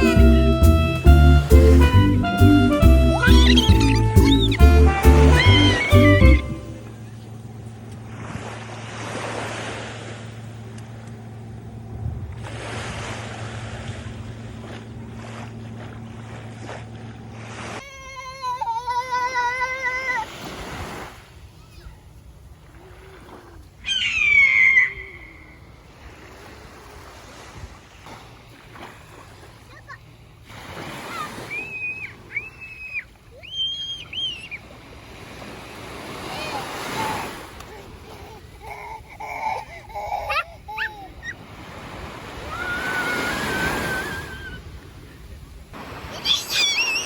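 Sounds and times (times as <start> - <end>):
wavering high-pitched tone: 0.0 - 8.2
steady low hum: 0.0 - 20.1, 37.3 - 42.6
sea waves washing on shore: 0.0 - 47.0
surf and wind: 0.0 - 47.0
bird calling: 3.0 - 7.9, 23.2 - 25.9, 30.9 - 34.8, 36.2 - 44.9, 46.0 - 47.0.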